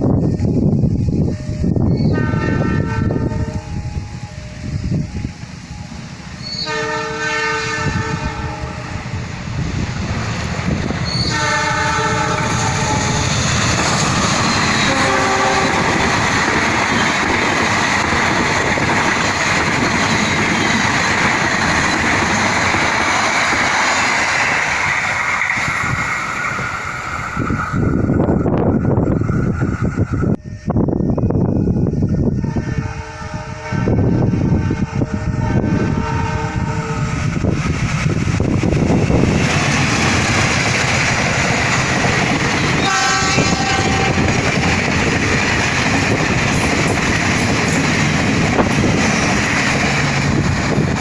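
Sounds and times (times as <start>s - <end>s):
train passing with wheel clatter: 0.0s - 51.0s
train horn blasts: 2.0s - 4.9s, 6.4s - 9.2s, 11.1s - 13.4s, 14.4s - 17.1s, 30.4s - 37.2s, 42.6s - 45.0s.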